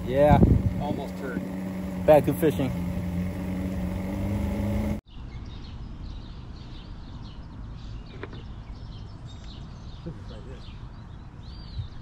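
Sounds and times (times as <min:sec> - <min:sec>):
boat motor running: 0:00.0 - 0:05.0
small birds chirping: 0:00.0 - 0:12.0.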